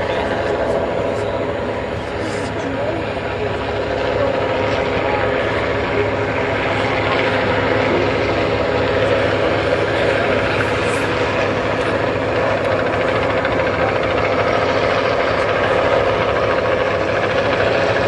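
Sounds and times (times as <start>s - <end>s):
piston engines droning: 0.0s - 18.0s.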